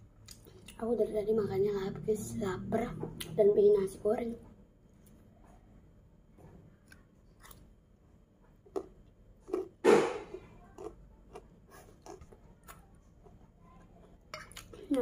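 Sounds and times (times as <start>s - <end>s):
child chewing food: 0.1s - 0.9s, 6.5s - 15.0s.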